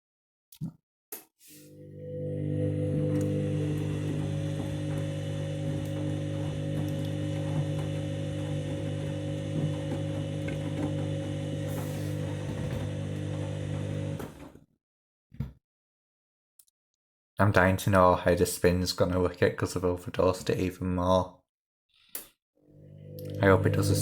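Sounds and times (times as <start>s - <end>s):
washing machine motor hum: 1.7s - 14.6s, 22.6s - 24.0s.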